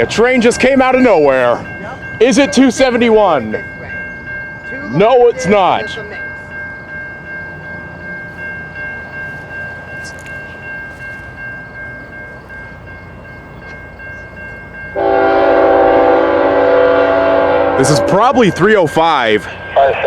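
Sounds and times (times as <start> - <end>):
thin high ringing tone: 0.0 - 16.4
train rumbling past: 0.0 - 20.0
locomotive horn blast: 15.0 - 18.4.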